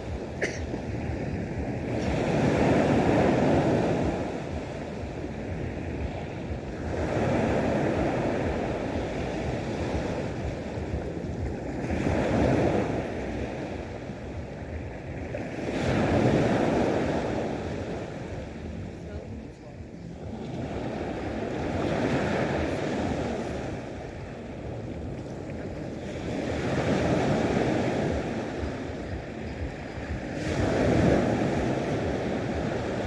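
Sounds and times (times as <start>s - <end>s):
sea waves washing ashore: 0.0s - 33.0s.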